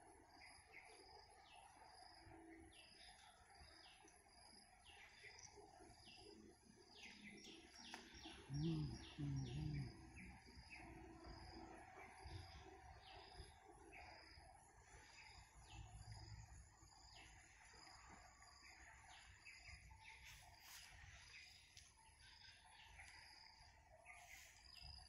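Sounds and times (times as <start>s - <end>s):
small birds chirping: 0.3s - 25.0s
low voice-like sounds: 8.5s - 10.2s.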